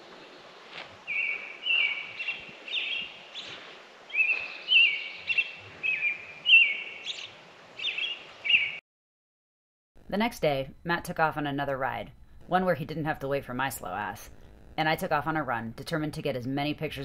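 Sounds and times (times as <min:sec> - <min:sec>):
faint outdoor hiss: 0:00.0 - 0:08.7, 0:10.0 - 0:17.0
songbird whistling phrases: 0:01.1 - 0:03.5, 0:04.1 - 0:08.8.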